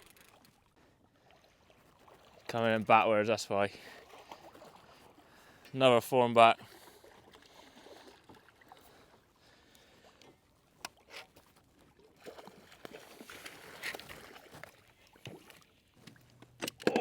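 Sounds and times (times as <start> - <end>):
clicks and knocks on kayak: 16.0 - 17.0.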